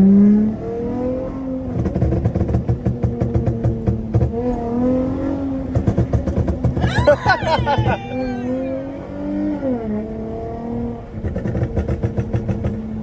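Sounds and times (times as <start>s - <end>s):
car exhaust rumbling: 1.6s - 9.9s, 11.0s - 13.0s
exhaust crackling pops: 1.8s - 4.8s, 5.4s - 6.9s, 11.2s - 13.0s.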